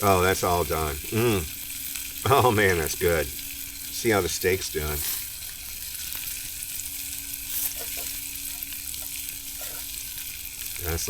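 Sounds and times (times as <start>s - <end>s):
steak sizzling on a grill: 0.0s - 11.0s.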